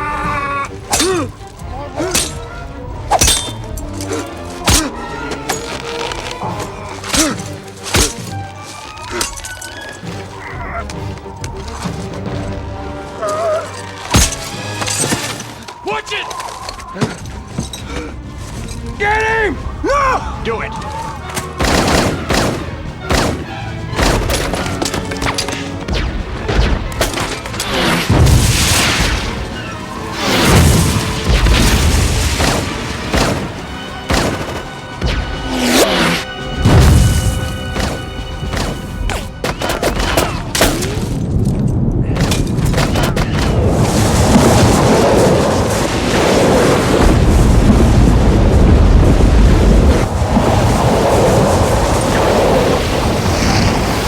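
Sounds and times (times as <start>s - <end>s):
dramatic orchestral music: 0.0s - 54.0s
dense avalanche rumble: 25.7s - 35.5s, 40.2s - 54.0s
booms blasts and impacts: 28.0s - 29.6s, 30.2s - 35.4s, 41.8s - 50.8s.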